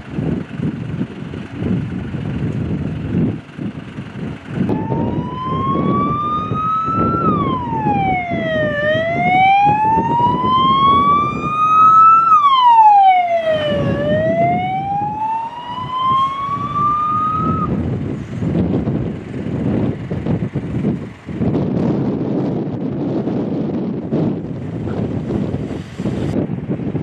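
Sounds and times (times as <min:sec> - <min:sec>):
low engine rumble: 0:00.0 - 0:27.0
siren wailing: 0:04.7 - 0:17.8.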